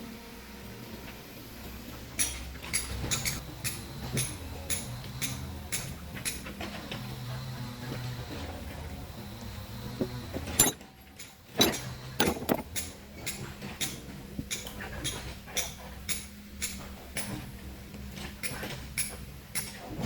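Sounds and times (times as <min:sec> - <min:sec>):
hammer striking chisel into stone: 0:11.6 - 0:12.7.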